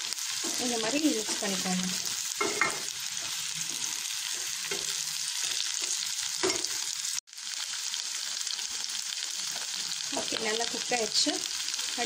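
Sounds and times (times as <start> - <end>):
food sizzling in a wok: 0.0 - 12.0
spatula stirring and scraping: 0.1 - 6.6.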